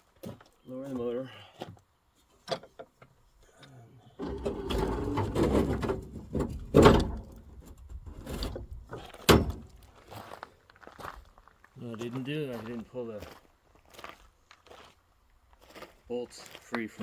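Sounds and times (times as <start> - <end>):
sharp metal knocks: 4.2 - 9.8
metal scraping and creaking: 4.2 - 9.9.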